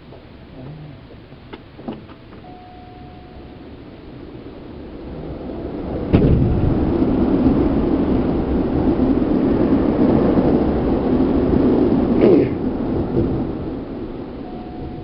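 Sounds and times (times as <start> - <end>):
train wheels and motors rumbling: 0.0 - 15.0
sharp bang: 6.1 - 6.9.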